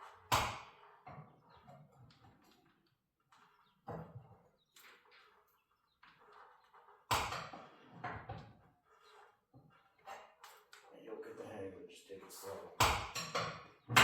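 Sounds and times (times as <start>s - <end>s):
steel bars knocking and clanking: 12.8s - 14.0s.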